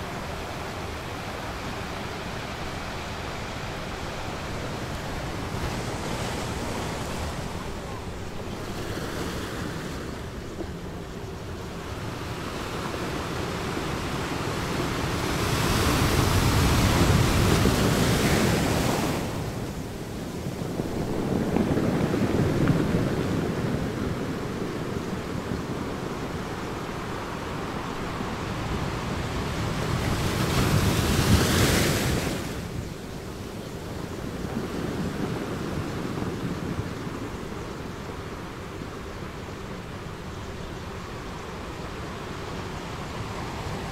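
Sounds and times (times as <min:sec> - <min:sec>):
ocean waves rushing: 0:00.0 - 0:33.3.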